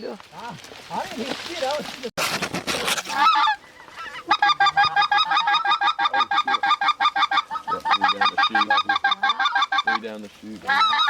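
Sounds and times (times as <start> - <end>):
goose honking rapidly: 3.1 - 11.0.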